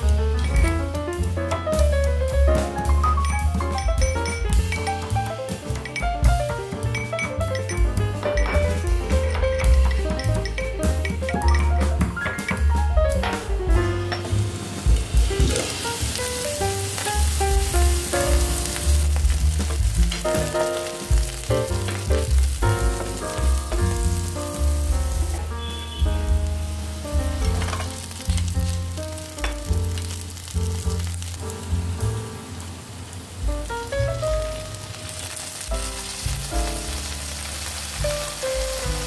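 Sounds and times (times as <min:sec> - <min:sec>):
background music with bass: 0:00.0 - 0:32.8, 0:33.4 - 0:39.0
vegetables sizzling in oil: 0:14.2 - 0:39.0.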